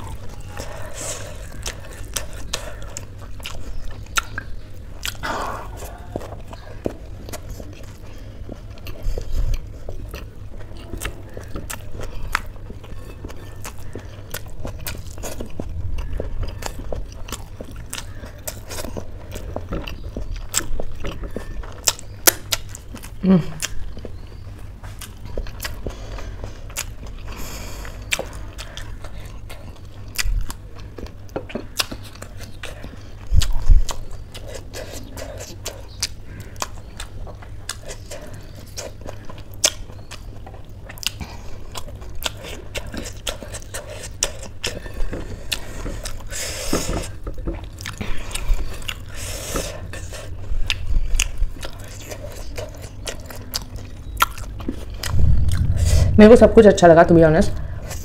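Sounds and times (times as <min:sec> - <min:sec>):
person chewing: 0:00.0 - 0:56.2
low thump: 0:55.1 - 0:56.6.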